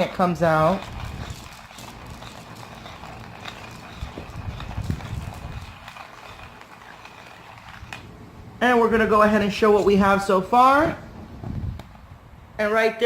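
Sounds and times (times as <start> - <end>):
hand coffee grinder crunching: 0.0 - 8.1.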